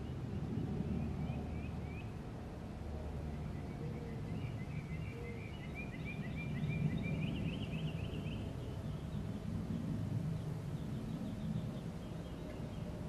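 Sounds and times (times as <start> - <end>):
low outdoor rumble: 0.0 - 13.0
songbird chirping: 3.1 - 13.0.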